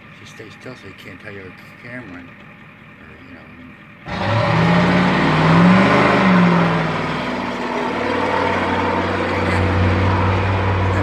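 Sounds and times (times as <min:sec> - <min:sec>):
vehicle engine revving: 0:03.7 - 0:11.0.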